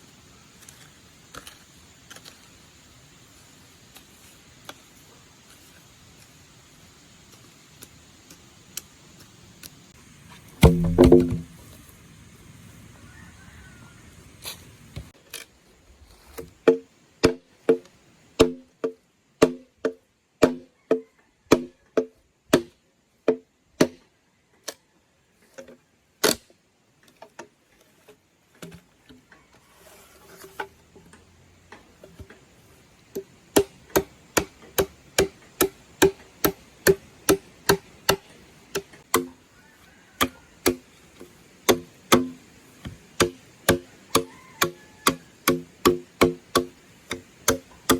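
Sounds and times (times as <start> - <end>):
chopping blows with hollow ring: 10.6 - 11.6, 33.6 - 39.4, 40.2 - 47.9.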